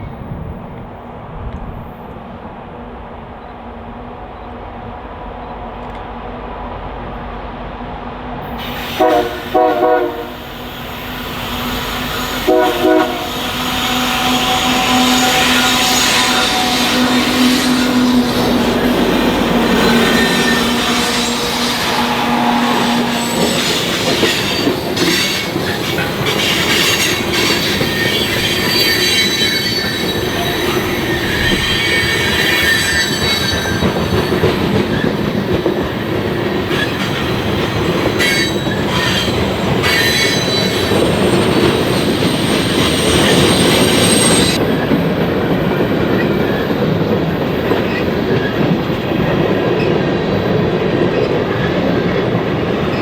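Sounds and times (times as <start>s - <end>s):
train cars rolling past: 0.0s - 53.0s
wheels squealing: 10.4s - 44.7s.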